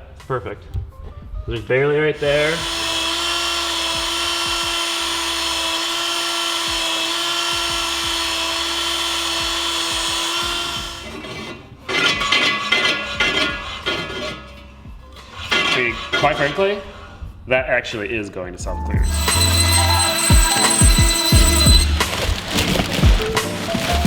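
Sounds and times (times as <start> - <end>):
power tool motor running: 2.2 - 12.1, 19.0 - 24.0
clattering and knocks: 19.0 - 24.0.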